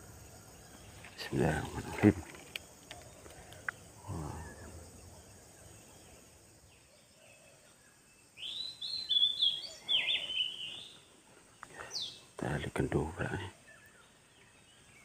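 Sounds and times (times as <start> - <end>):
bird singing chirping notes: 2.9 - 11.1.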